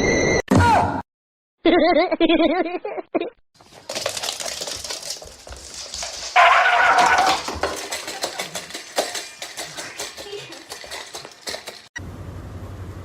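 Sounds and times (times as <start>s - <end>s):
clattering and rattling: 3.6s - 12.0s.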